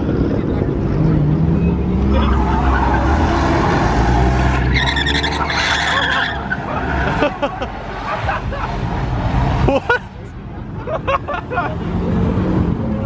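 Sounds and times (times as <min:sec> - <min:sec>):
car engine revving: 0:00.1 - 0:13.0
tyres screeching: 0:01.5 - 0:08.2.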